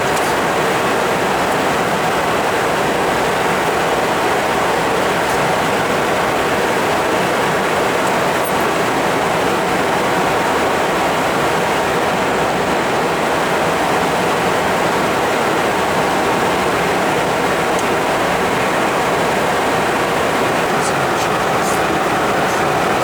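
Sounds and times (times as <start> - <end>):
jet engine rushing noise: 18.6 - 23.0.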